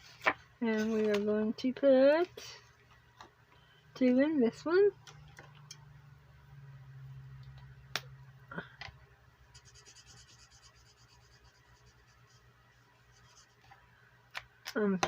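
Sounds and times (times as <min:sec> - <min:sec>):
low steady hum: 0:00.0 - 0:15.0
marker scribbling on paper: 0:09.6 - 0:12.4, 0:13.1 - 0:13.7.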